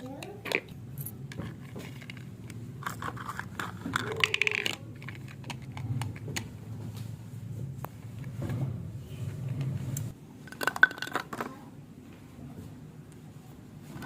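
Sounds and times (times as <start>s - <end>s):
plastic toy pieces clattering: 0.1s - 6.4s, 10.5s - 11.6s.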